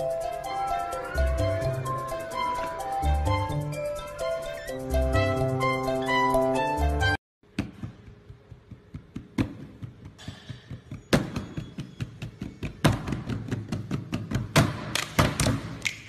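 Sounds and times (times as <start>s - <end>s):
gentle background tune: 0.0s - 7.2s.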